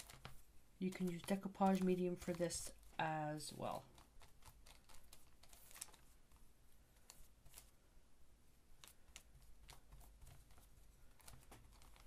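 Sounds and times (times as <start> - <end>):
brush and paper taps and scrapes: 0.0 - 7.7, 8.8 - 12.0.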